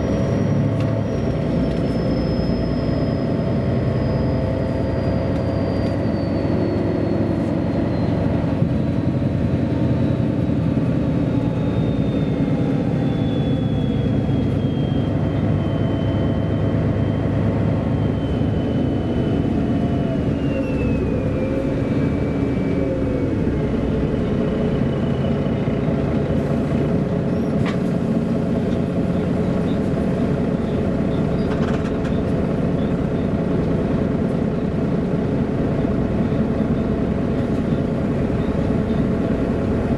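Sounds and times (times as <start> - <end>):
bus diesel engine: 0.0 - 39.9
road noise: 0.0 - 39.9.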